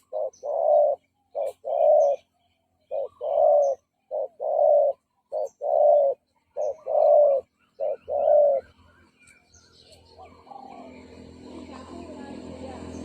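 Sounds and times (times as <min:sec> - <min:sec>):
dove cooing: 0:00.0 - 0:08.8, 0:10.2 - 0:11.3.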